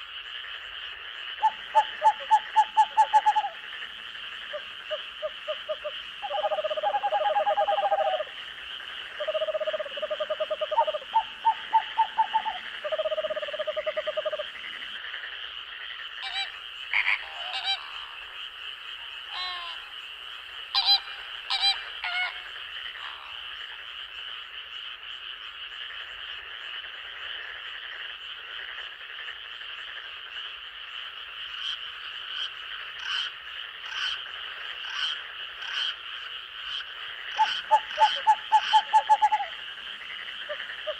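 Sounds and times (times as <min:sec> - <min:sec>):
high insect drone: 0:00.0 - 0:26.9
frogs calling: 0:00.0 - 0:40.9.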